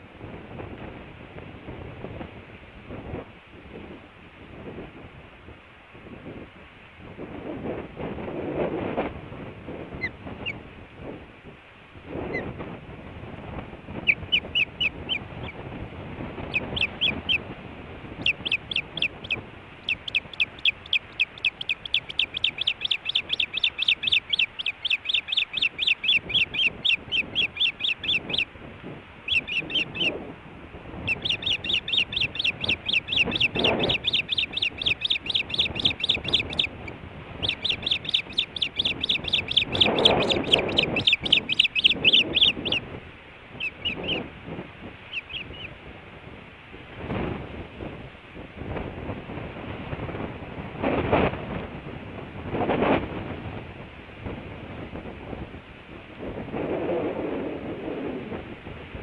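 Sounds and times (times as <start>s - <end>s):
osprey sharp chirps: 18.2s - 28.5s, 31.1s - 42.8s.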